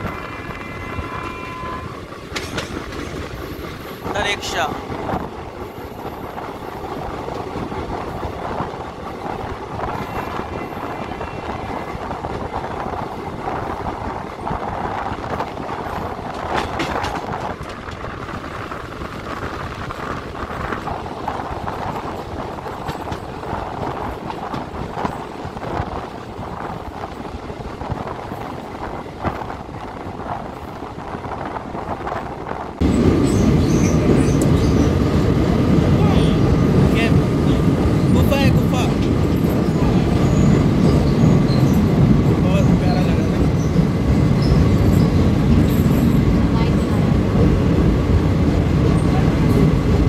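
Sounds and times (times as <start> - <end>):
train wheels clattering over rail joints: 2.1 - 4.1, 11.8 - 35.0.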